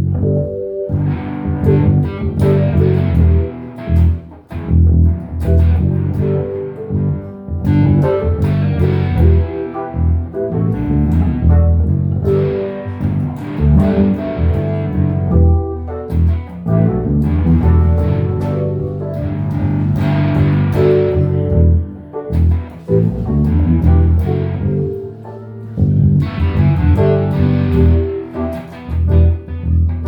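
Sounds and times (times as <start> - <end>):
low bass line: 0.0 - 30.0
plucked guitar notes: 0.0 - 30.0.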